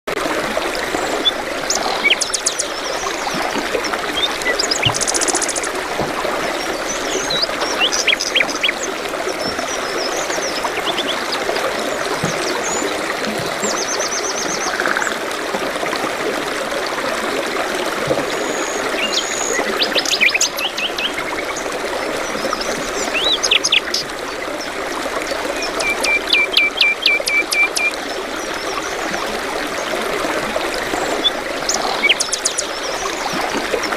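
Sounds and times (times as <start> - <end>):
flowing water rushing: 0.1 - 33.9
birds chirping and trilling: 1.2 - 3.2, 6.5 - 15.1, 31.0 - 33.0.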